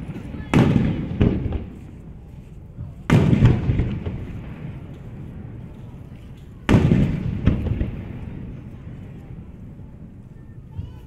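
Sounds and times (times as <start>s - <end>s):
low rolling echo: 0.0s - 11.0s
firework shells bursting: 3.1s - 8.9s.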